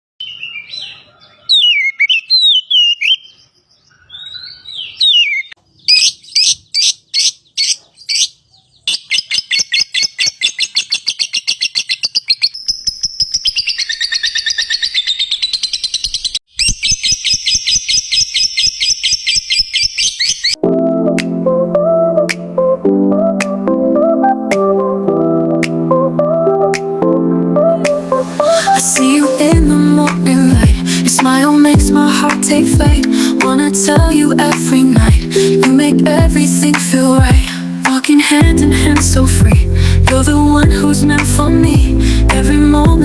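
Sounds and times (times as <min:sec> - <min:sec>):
lovebird chirping: 0:00.2 - 0:20.6.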